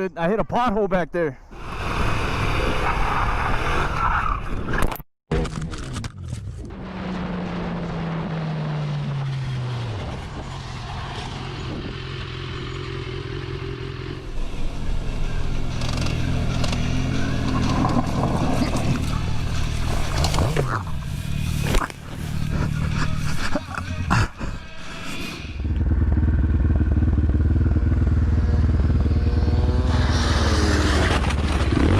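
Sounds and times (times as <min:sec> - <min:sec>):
motorcycle engine slowing: 0:06.7 - 0:31.9.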